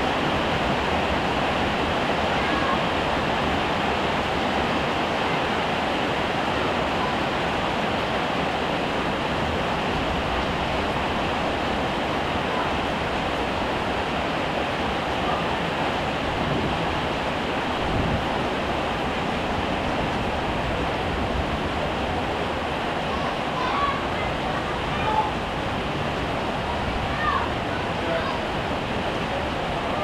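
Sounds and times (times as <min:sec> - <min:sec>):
heavy rain falling: 0:00.0 - 0:30.0.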